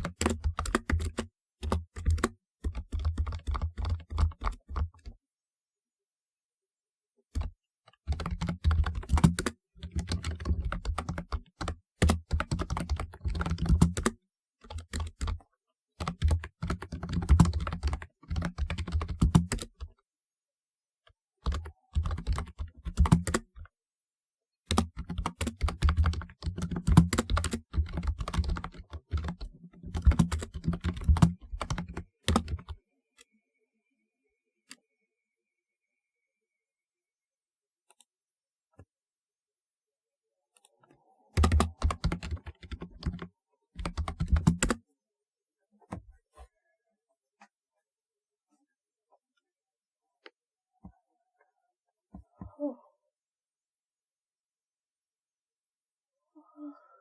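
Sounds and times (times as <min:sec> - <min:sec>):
clacking keyboard keystrokes: 0:00.0 - 0:05.1, 0:08.1 - 0:15.4, 0:16.0 - 0:19.8, 0:21.4 - 0:23.6, 0:24.7 - 0:32.8, 0:41.4 - 0:44.8.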